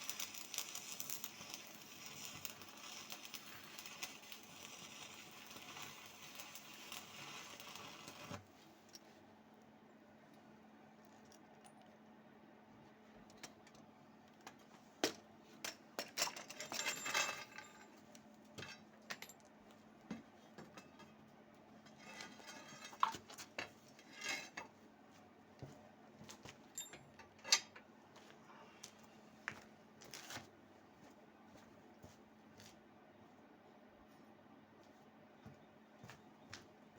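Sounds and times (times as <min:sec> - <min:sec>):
metal parts clinking: 0:16.0 - 0:17.9.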